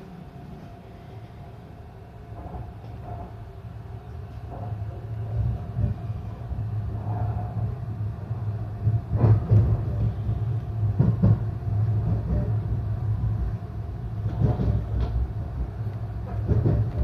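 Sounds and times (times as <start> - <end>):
train interior low rumble: 0.0 - 17.0
wheels clacking over rail joints: 14.2 - 17.0.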